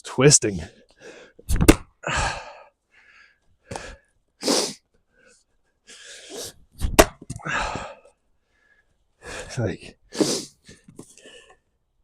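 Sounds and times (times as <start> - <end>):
axe striking log: 1.5 - 1.9, 6.8 - 7.3
man exhaling and grunting: 2.0 - 2.7, 7.3 - 8.1.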